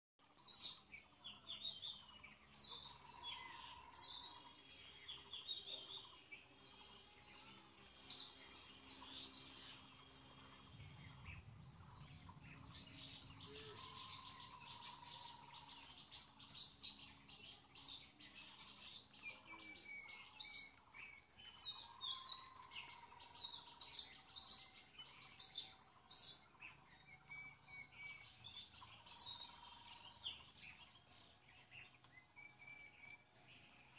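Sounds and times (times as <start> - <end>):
birds chirping and calling: 0.2 - 33.9.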